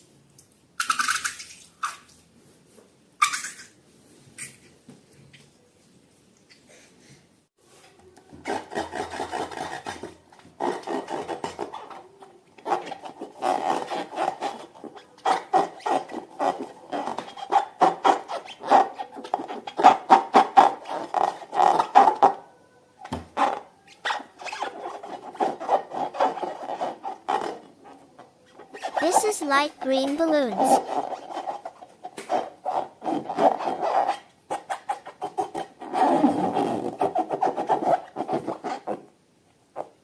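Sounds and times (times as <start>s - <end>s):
balloons and slime rubbed by hand: 9.5s - 22.2s, 24.0s - 39.1s.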